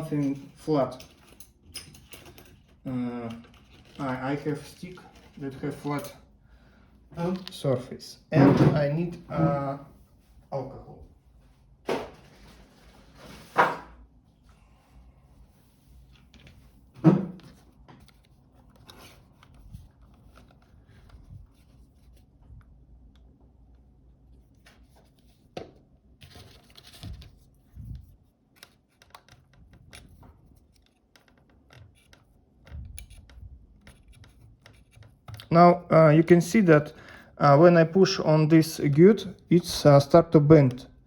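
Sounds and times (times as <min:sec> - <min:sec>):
clicks taps and scrapes: 0:24.5 - 0:35.5.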